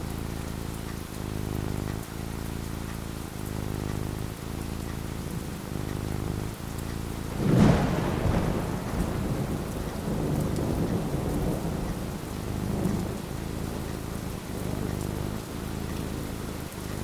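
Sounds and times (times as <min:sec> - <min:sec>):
steady rain: 0:00.0 - 0:17.0
thunderclap with rolling rumble: 0:05.0 - 0:17.0.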